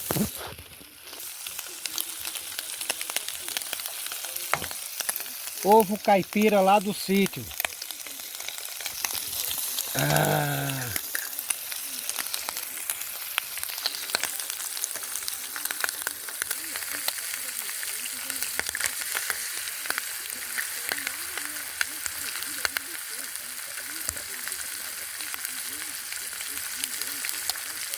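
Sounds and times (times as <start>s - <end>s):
crackling spatter pops: 0.0s - 10.1s, 10.8s - 22.9s
eggs sizzling in a pan: 0.0s - 27.9s.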